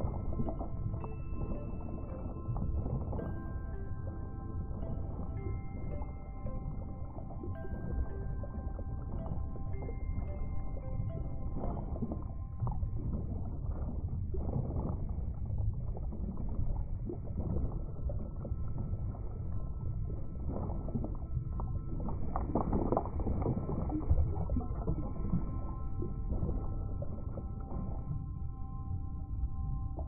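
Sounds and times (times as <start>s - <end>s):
low underwater rumble: 0.0s - 30.0s
water swishes and bubbling: 0.0s - 30.0s.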